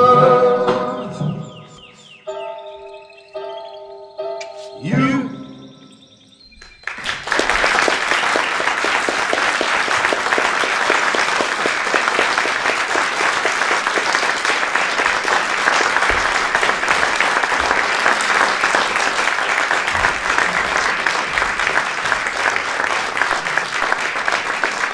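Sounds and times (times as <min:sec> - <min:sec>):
audience applauding: 0:06.6 - 0:24.9.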